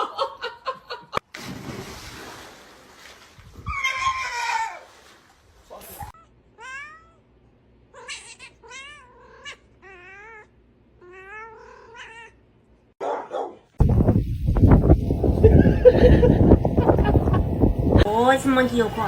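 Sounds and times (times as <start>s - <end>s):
cat meowing: 6.6s - 7.2s, 8.0s - 12.4s.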